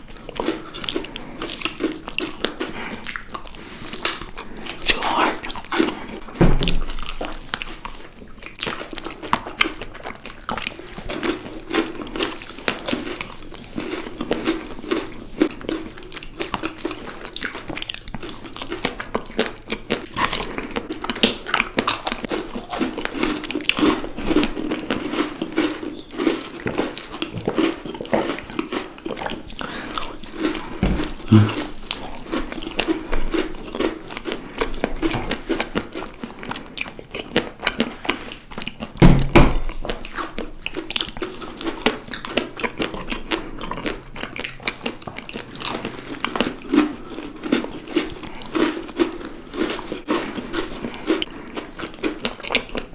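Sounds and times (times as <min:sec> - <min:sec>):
chocolate crunching: 0:00.1 - 0:39.0, 0:39.8 - 0:52.9
mouth sounds: 0:30.8 - 0:31.8.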